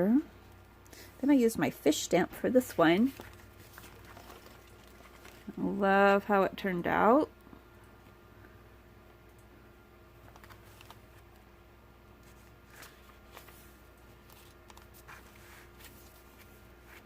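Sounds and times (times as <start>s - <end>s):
low steady hum: 0.0s - 17.0s
paper pages rustling and turning: 2.7s - 5.6s, 10.2s - 11.4s, 12.2s - 17.0s.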